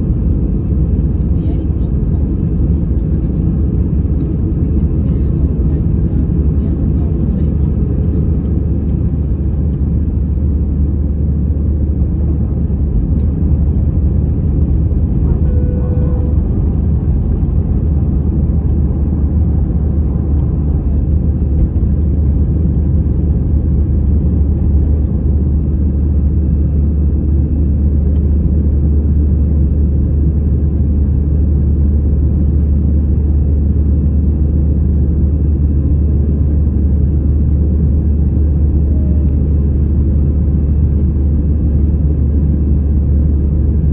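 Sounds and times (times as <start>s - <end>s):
jet engine rumble in cabin: 0.0s - 43.9s
short pitched tone: 15.2s - 17.4s.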